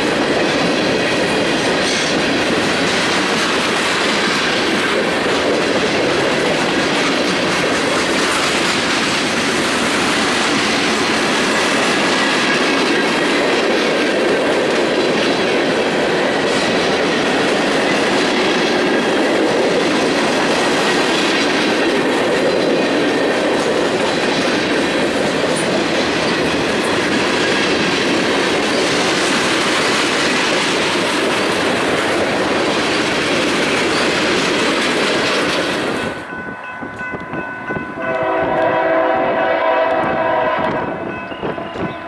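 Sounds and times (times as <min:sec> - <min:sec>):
freight cars rolling on rails: 0:00.0 - 0:42.0
locomotive horn: 0:38.0 - 0:41.9.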